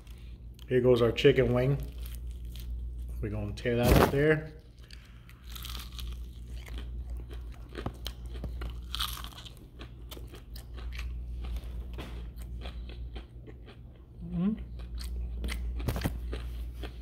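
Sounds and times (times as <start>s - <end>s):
crunchy chewing of fried chicken: 4.6s - 17.0s.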